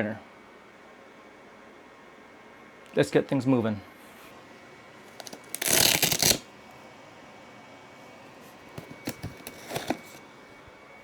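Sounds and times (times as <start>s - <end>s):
cardboard rasping: 5.1s - 6.4s, 8.7s - 10.2s.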